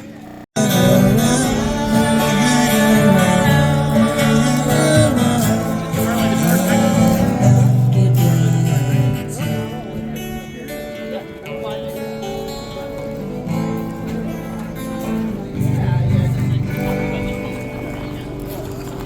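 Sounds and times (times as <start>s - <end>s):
strummed acoustic guitar: 0.0s - 19.0s
person singing: 0.6s - 10.4s.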